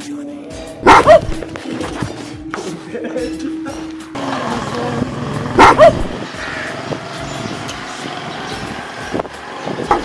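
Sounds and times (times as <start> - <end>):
low traffic hum: 4.0 - 10.0.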